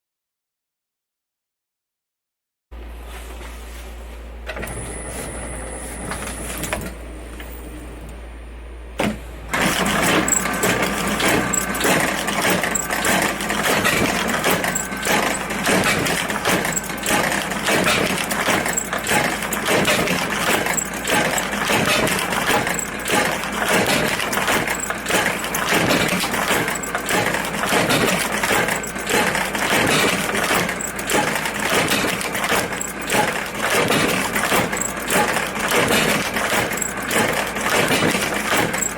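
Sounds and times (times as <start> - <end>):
sewing machine needle clatter: 9.5 - 38.9.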